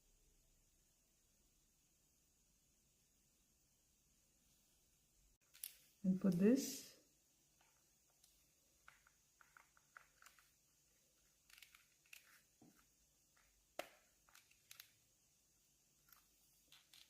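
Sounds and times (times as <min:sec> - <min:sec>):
handling clicks and rustles: 0:07.5 - 0:15.1, 0:16.0 - 0:17.0.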